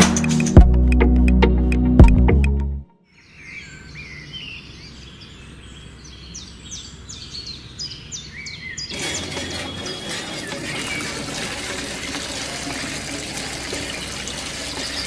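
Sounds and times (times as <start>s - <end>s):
small birds chirping: 3.1s - 11.4s, 14.0s - 15.0s
water gushing from hand pump: 8.9s - 15.0s.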